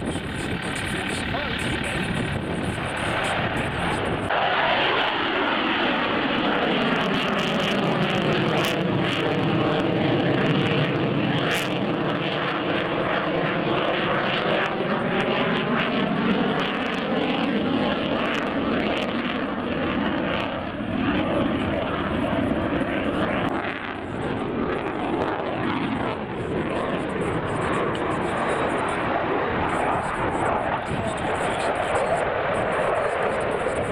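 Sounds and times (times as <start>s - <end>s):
aircraft engine drone: 0.0s - 33.9s.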